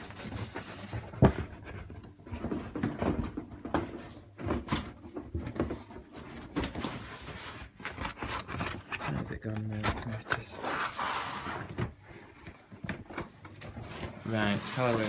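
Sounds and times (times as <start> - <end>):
cardboard box rustling and scraping: 0.0 - 12.4, 13.1 - 15.0.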